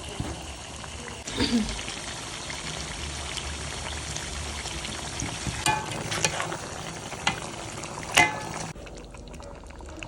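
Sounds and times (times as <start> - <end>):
food sizzling in a pan: 0.0 - 9.2
utensil clinking against pan: 5.6 - 6.5, 8.1 - 8.7.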